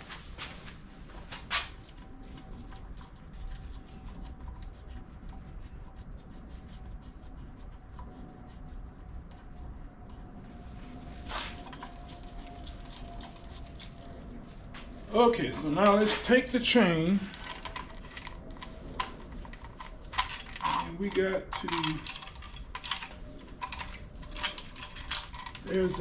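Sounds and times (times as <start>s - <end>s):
tools clicking on engine bolts: 15.8s - 26.0s.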